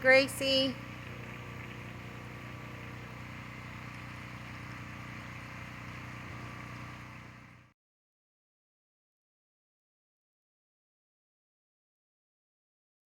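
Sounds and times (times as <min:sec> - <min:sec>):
motor humming: 0:00.0 - 0:07.7.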